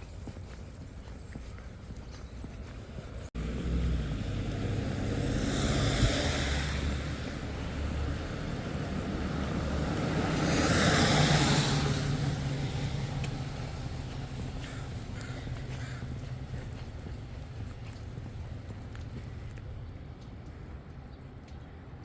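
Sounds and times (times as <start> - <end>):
low traffic rumble: 0.0 - 22.0
vehicles passing: 0.0 - 22.0.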